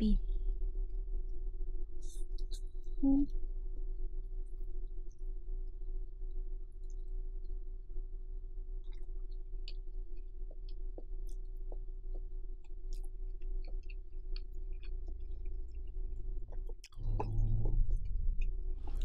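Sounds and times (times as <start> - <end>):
low hum: 0.0 - 19.0
wet chewing and mouth smacks: 8.8 - 19.0.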